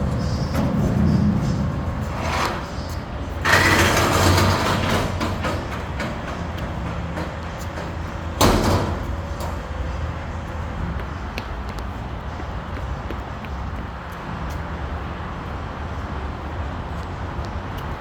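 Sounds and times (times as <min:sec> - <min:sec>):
garbage truck engine running: 0:00.0 - 0:10.7.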